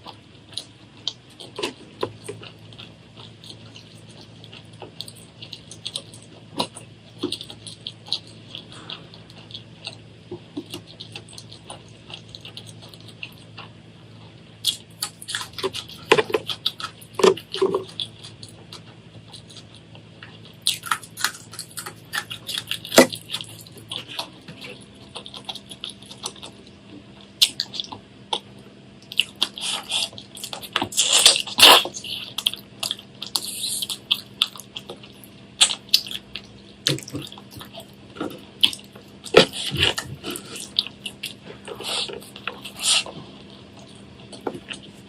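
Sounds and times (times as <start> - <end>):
wet chewing: 0.0 - 45.0
lip smacking: 35.6 - 45.0.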